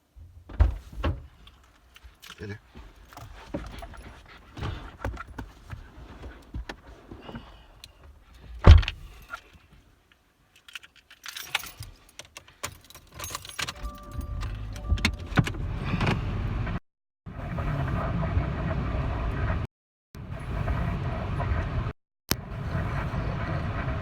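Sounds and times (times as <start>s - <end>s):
jingling clicking handling noises: 1.4s - 5.6s, 10.1s - 15.6s
steady low rumble: 13.8s - 24.0s.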